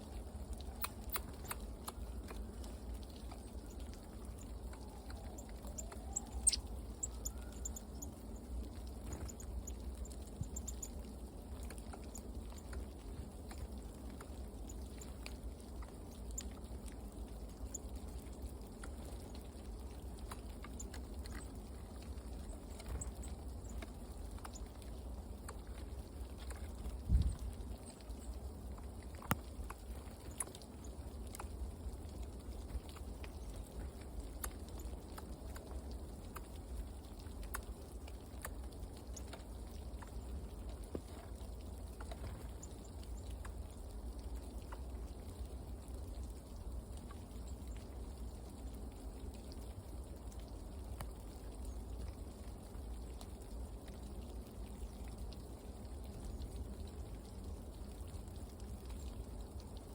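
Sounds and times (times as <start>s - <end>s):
steady low rumble: 0.0s - 47.1s
light ticks and taps: 0.1s - 45.5s, 48.7s - 59.9s.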